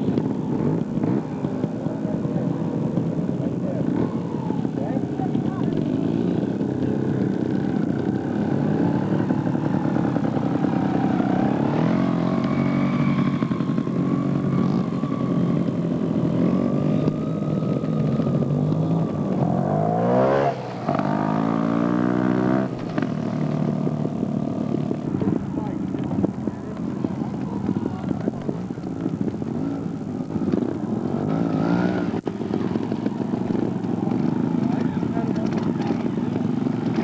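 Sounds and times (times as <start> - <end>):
vehicle engine revving: 0.0 - 37.0.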